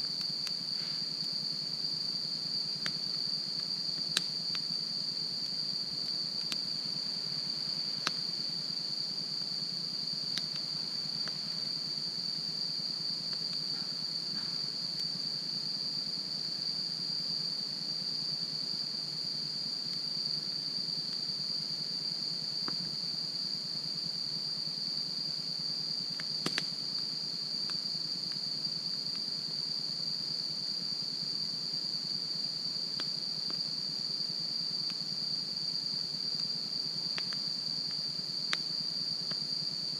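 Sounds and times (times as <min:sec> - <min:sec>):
crickets chirring: 0:00.0 - 0:39.9
campfire crackling: 0:02.2 - 0:12.0, 0:13.2 - 0:15.3, 0:26.1 - 0:29.3, 0:32.8 - 0:33.7.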